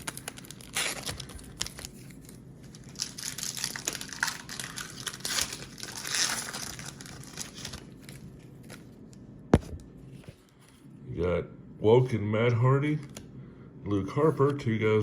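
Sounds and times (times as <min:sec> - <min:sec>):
wrapper crinkling and tearing: 0:00.0 - 0:09.0.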